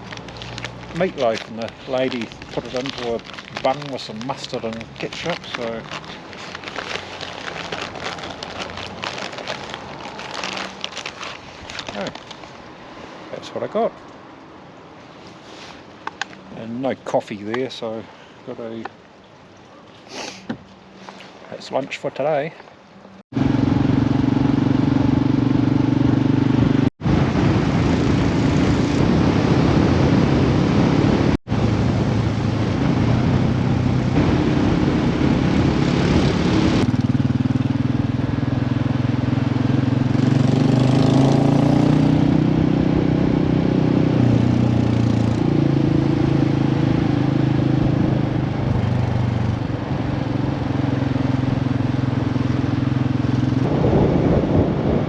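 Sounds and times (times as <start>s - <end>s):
wind and road noise: 0.0s - 55.0s
motorcycle engine running: 23.4s - 26.9s, 32.0s - 43.4s, 44.0s - 54.7s.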